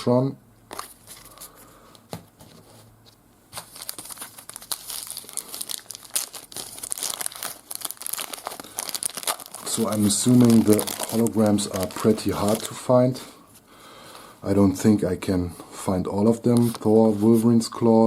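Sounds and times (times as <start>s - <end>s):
wrapper crinkling and tearing: 3.6s - 12.9s.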